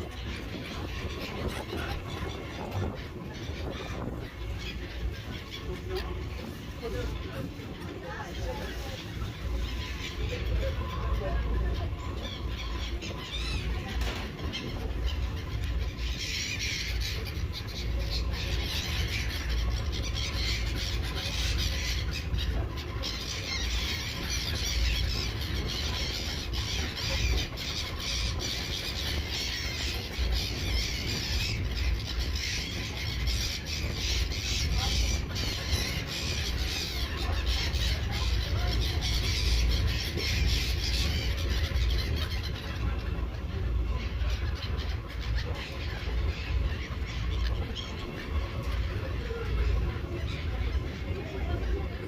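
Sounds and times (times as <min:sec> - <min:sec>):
seagulls calling: 0:00.0 - 0:52.0
steady low rumble: 0:00.0 - 0:52.0.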